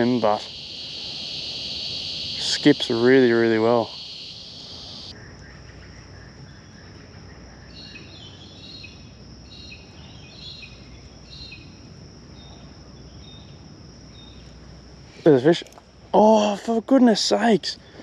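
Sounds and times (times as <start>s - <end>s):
high-pitched insect drone: 0.0s - 5.2s
bird chirping: 0.0s - 11.7s.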